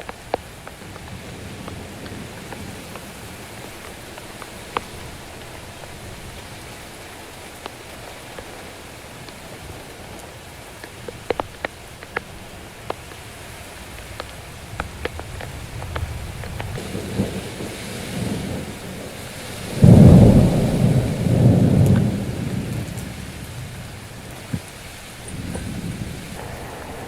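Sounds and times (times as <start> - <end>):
raindrop ticks: 0.0 - 27.0
steady rain: 0.0 - 27.0
low rumble of thunder: 14.5 - 24.6, 25.2 - 27.0.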